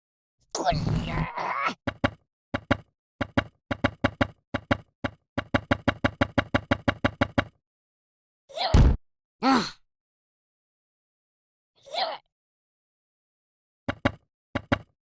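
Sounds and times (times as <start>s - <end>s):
loud thump: 8.8s - 9.0s.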